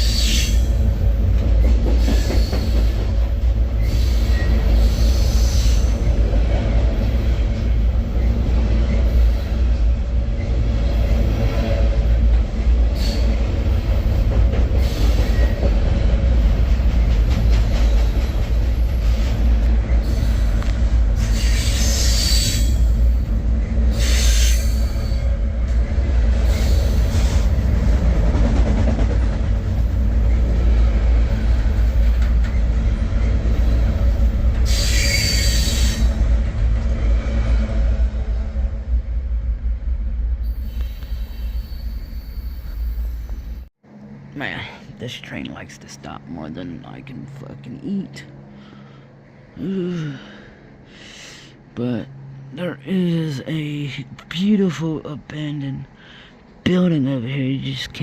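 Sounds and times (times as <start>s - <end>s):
freight train rumble: 0.0s - 58.0s
metallic screeching bursts: 3.8s - 6.2s, 21.2s - 23.2s, 23.9s - 25.3s, 26.4s - 27.5s, 34.6s - 36.2s, 40.5s - 43.6s.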